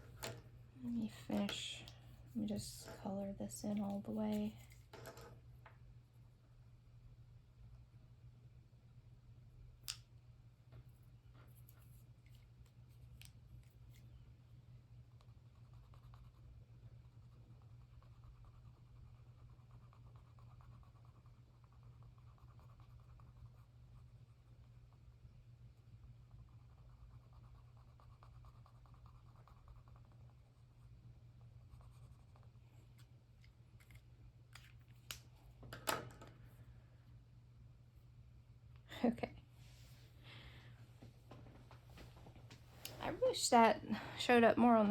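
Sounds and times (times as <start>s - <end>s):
low room hum: 0.0s - 44.9s
pencil scratching on paper: 15.2s - 24.4s, 26.5s - 30.6s, 31.6s - 32.5s.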